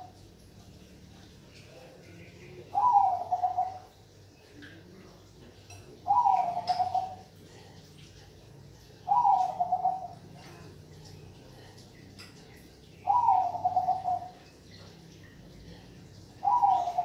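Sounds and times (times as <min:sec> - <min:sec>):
dove cooing: 0:02.7 - 0:04.0, 0:06.0 - 0:07.6, 0:08.9 - 0:11.0, 0:12.6 - 0:14.6, 0:16.3 - 0:17.0.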